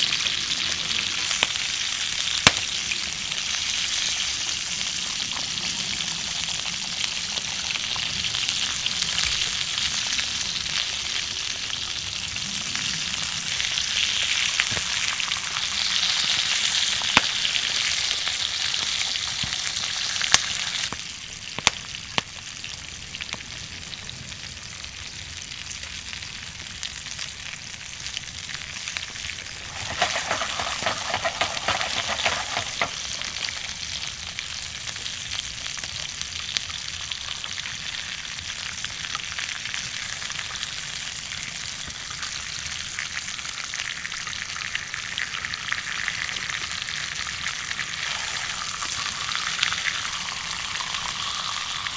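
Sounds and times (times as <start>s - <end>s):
steak sizzling over fire: 0.0s - 51.9s.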